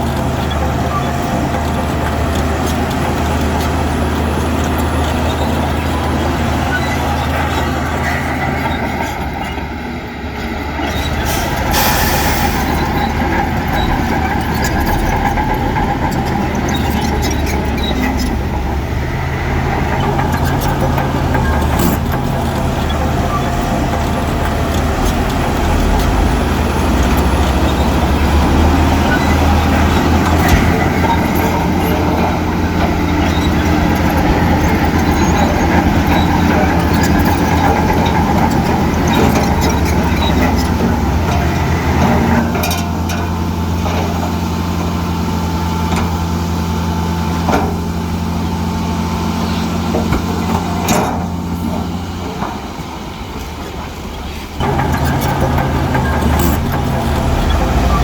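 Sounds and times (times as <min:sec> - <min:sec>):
diesel construction machinery running: 0:00.0 - 0:58.0
metal clanks and knocks: 0:19.5 - 0:45.0.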